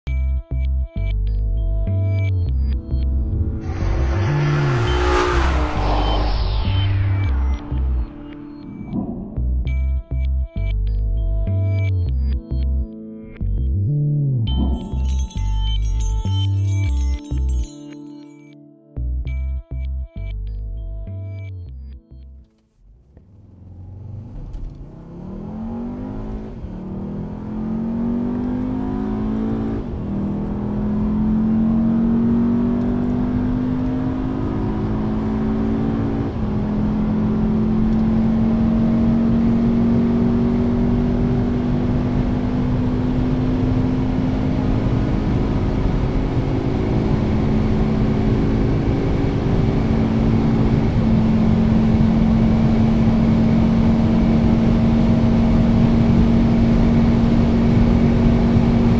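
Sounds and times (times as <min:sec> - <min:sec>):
car engine accelerating hard: 0:02.9 - 0:09.4, 0:22.9 - 0:58.9.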